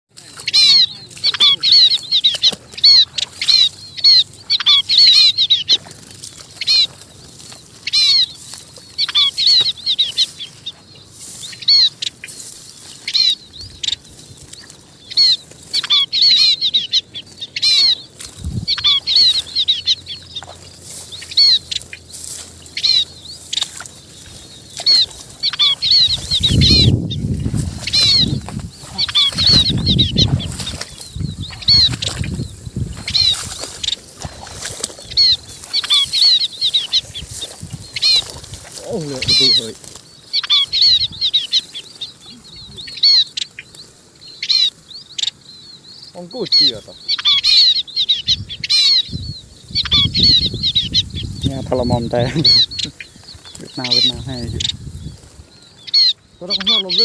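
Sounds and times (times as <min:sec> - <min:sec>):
munias chirping: 0:00.1 - 0:57.0
low rumbling noise: 0:17.0 - 0:35.9.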